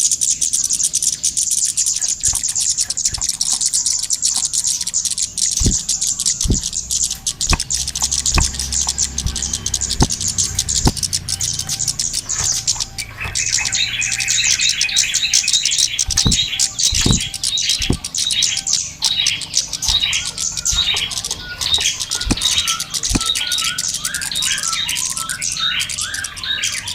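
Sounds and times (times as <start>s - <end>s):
small birds chirping and twittering: 0.0s - 26.9s
short low knocks: 5.6s - 11.0s, 16.0s - 18.1s.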